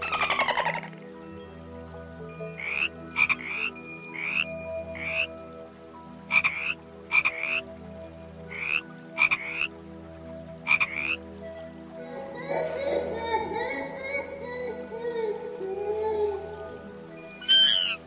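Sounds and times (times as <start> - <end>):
animal chirping croaks: 0.0 - 1.0, 2.6 - 5.3, 6.3 - 7.6, 8.5 - 9.7, 10.6 - 11.2, 17.4 - 18.0.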